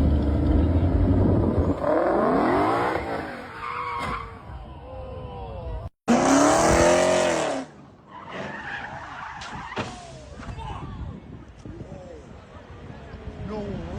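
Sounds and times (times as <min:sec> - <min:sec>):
car engines revving: 0:00.0 - 0:04.6, 0:06.1 - 0:09.2.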